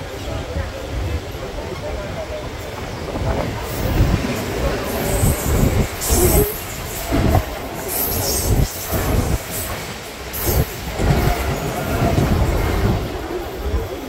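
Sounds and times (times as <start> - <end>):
heavy train jolts: 0.0 - 14.0
train wheels clattering on rails: 0.0 - 14.0
high hissing squeals: 3.7 - 14.0.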